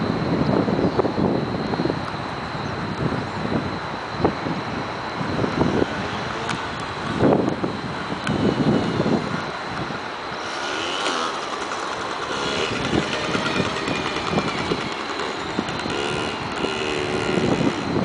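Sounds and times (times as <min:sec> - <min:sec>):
motorcycle engines revving: 0:05.0 - 0:18.0.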